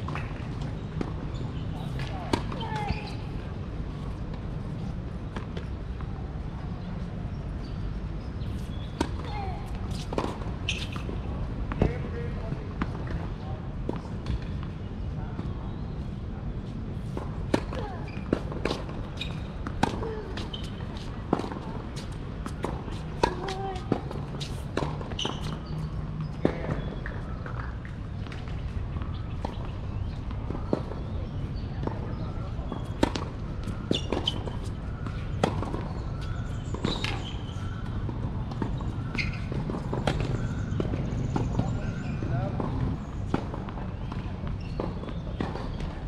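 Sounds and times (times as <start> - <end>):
tennis ball bouncing on court: 0.0 - 3.2, 17.1 - 31.1, 31.8 - 46.0.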